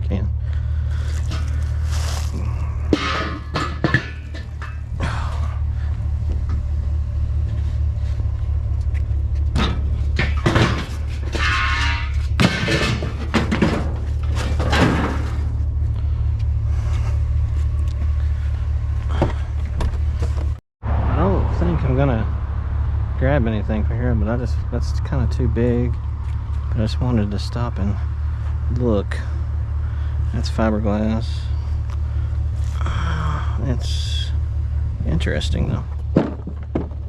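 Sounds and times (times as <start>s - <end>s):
vehicle engine idling: 0.0s - 37.0s
scraping: 0.6s - 20.6s
rustling: 0.9s - 2.7s
knocks: 36.1s - 37.0s.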